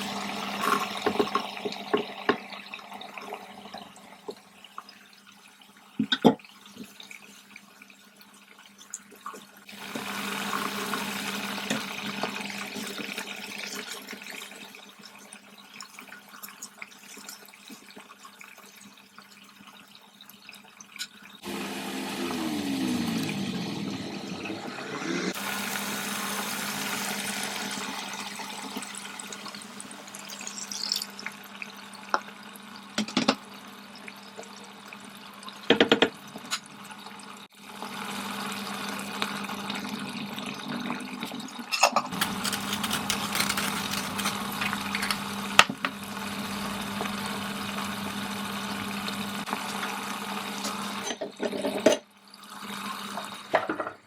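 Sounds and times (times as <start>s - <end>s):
tap running water into sink: 0.5s - 4.5s, 6.0s - 7.0s, 9.1s - 14.6s, 33.0s - 33.5s, 35.6s - 36.7s.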